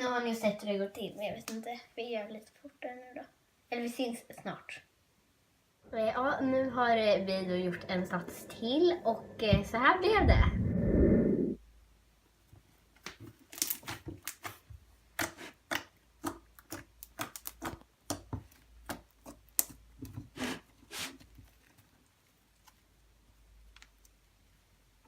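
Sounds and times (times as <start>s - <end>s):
slime clicking and popping: 15.2s - 19.8s.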